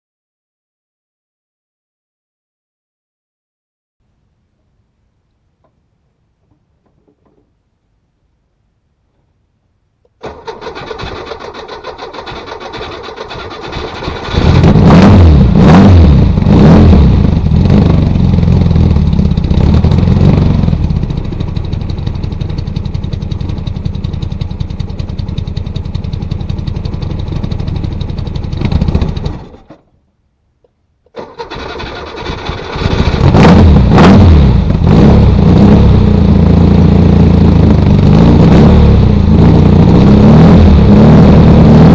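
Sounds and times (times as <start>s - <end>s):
car engine cranking: 10.2s - 18.1s, 19.3s - 29.9s, 31.1s - 34.8s
car engine revving loudly: 13.9s - 20.8s, 32.8s - 41.9s
car engine idling: 17.2s - 30.0s.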